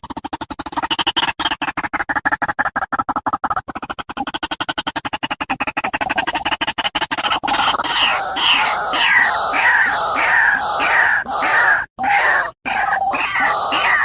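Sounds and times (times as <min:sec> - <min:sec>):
bird screeching calls: 0:07.5 - 0:14.0.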